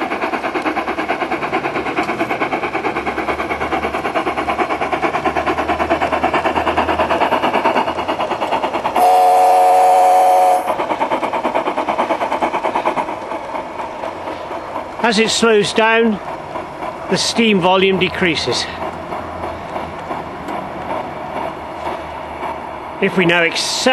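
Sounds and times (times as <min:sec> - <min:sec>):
model locomotive steam chuffs: 0:00.0 - 0:23.9.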